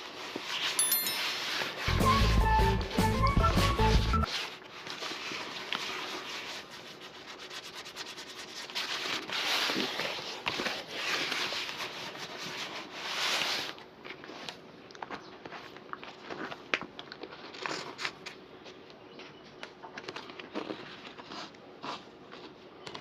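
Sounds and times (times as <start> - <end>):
leather shoe being rubbed: 5.0 - 13.7.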